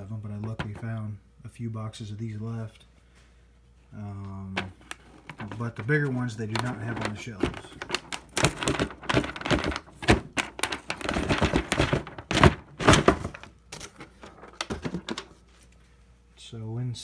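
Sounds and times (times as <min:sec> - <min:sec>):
cardboard box being handled: 0:04.6 - 0:15.4.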